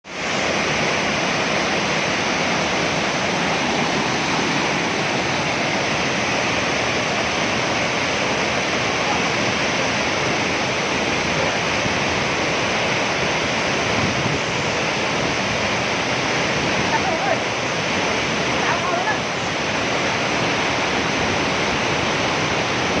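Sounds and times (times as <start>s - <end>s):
waterfall roaring: 0.0s - 23.0s.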